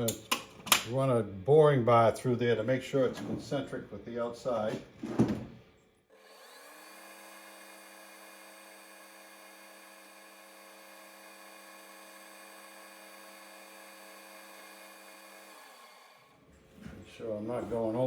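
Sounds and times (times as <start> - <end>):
metal lathe humming whine: 6.2 - 16.3.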